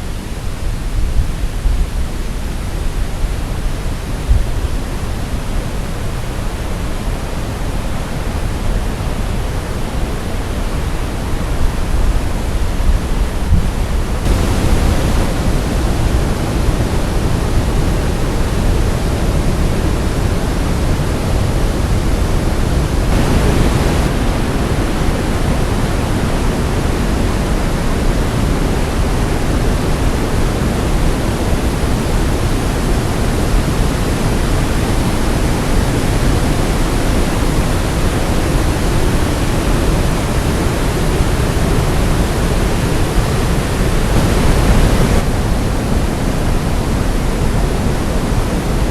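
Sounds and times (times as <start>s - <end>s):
waterfall rushing: 14.1s - 48.8s.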